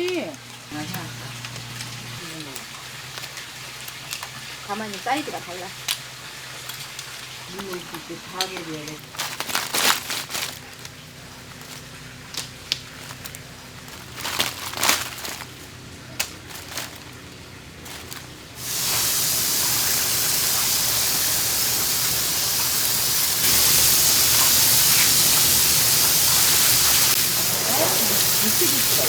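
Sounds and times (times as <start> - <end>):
loud steady hiss: 18.6 - 29.0.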